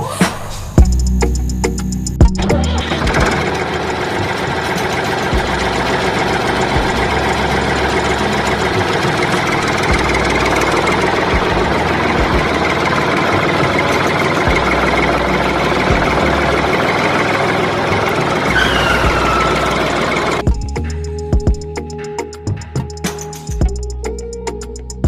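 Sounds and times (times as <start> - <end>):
small motor running: 2.8 - 20.4.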